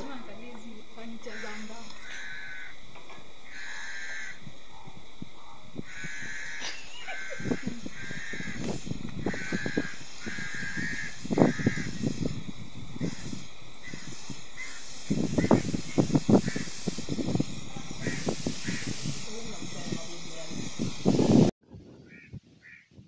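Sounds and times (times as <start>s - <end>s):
bird calling: 0.8s - 12.2s, 13.0s - 16.9s, 17.9s - 19.1s.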